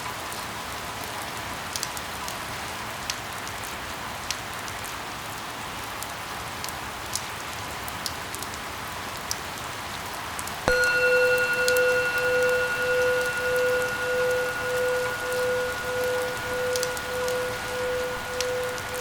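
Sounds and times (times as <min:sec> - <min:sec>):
drops ticking: 0:10.7 - 0:19.0
loud steady tone: 0:10.7 - 0:19.0.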